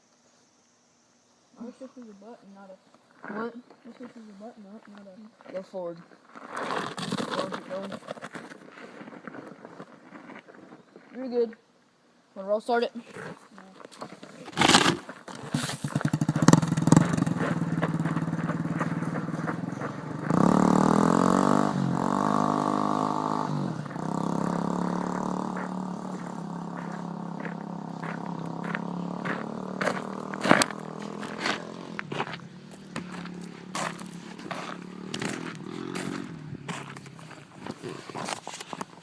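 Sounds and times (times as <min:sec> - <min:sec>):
dirt bike engine revving: 0:14.5 - 0:38.4.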